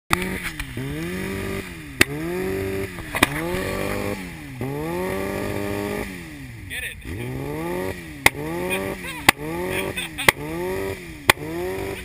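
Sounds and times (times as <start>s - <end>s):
exhaust pops: 0.1s - 6.1s
motorcycle engine revving: 0.1s - 12.0s.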